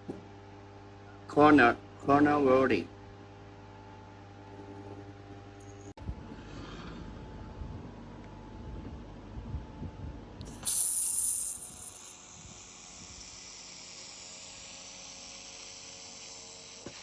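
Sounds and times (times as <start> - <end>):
laser welding hiss: 10.5 - 13.8.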